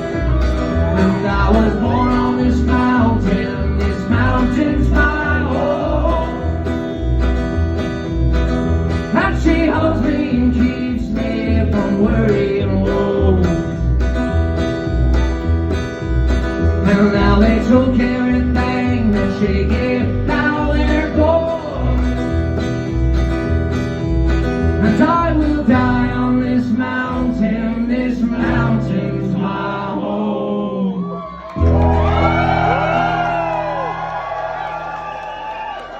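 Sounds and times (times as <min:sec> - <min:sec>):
audience cheering and whooping: 0:00.0 - 0:02.9, 0:30.8 - 0:35.9
string band playing country music: 0:00.0 - 0:29.9, 0:31.6 - 0:33.8.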